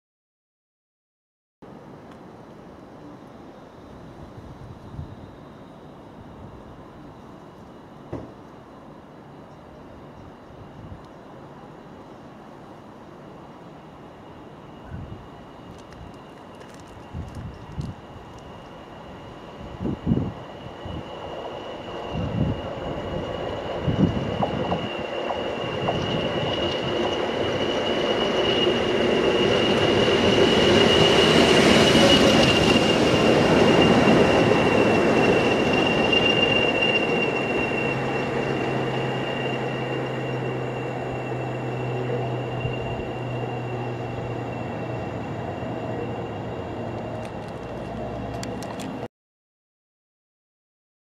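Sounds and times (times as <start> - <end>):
train passing: 1.7 - 49.1
high-pitched whine: 13.0 - 49.1.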